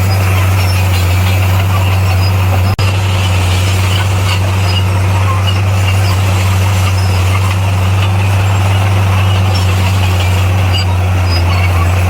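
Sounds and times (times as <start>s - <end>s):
bulldozer diesel engine droning: 0.0s - 12.0s.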